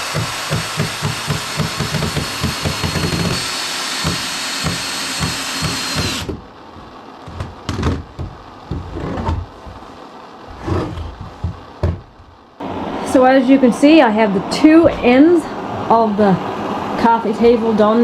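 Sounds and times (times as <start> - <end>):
power drill whining: 0.0 - 6.3
knocks: 4.0 - 9.5, 11.1 - 12.3.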